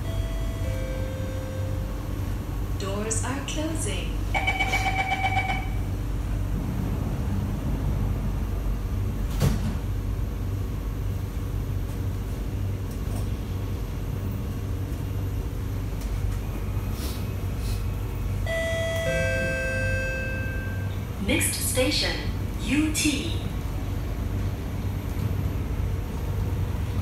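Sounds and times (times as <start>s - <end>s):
two-tone door chime: 0.0s - 2.0s, 4.4s - 5.8s, 18.5s - 21.0s
station announcement: 0.0s - 9.2s, 17.4s - 27.0s
train hum and rumble: 0.0s - 27.0s
sliding doors shutting: 6.5s - 10.0s.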